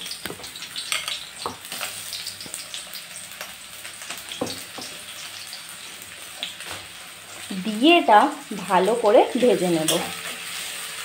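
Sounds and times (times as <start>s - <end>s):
onion sizzling in hot oil: 0.0s - 11.0s
spoon knocking on pan: 0.2s - 1.7s, 4.3s - 5.0s.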